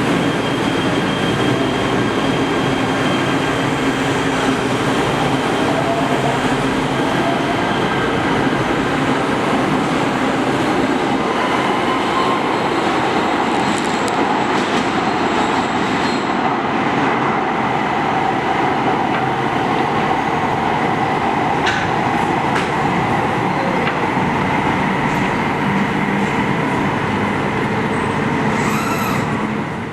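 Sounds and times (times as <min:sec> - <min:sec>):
train rumble: 0:18.0 - 0:29.9.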